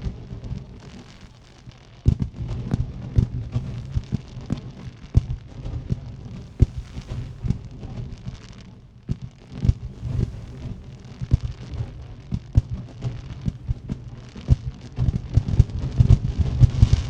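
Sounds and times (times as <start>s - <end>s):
low rumble: 0.0s - 16.9s
firework shells bursting: 0.4s - 15.5s.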